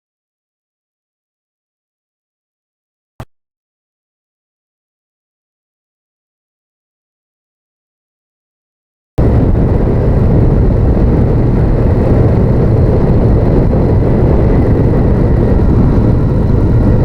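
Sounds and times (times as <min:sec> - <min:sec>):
motorcycle engine running: 0:09.2 - 0:17.0
wind noise rushing: 0:09.2 - 0:17.0.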